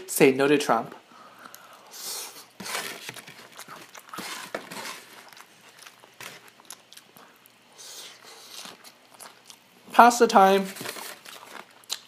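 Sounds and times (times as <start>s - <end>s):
man chewing food: 1.4s - 9.9s, 11.1s - 12.0s.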